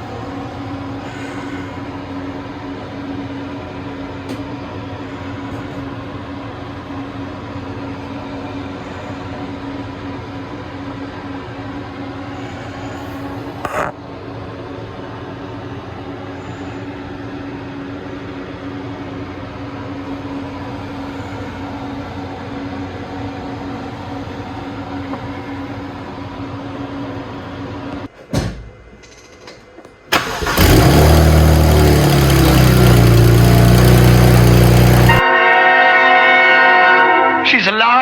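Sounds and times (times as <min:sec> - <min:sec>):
car engine starting and running: 0:30.1 - 0:35.2.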